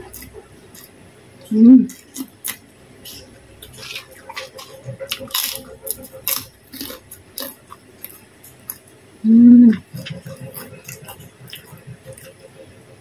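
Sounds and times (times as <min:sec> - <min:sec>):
person chewing food: 0:00.0 - 0:09.0, 0:09.6 - 0:12.7
woman humming mmm: 0:01.5 - 0:02.0, 0:09.2 - 0:09.9.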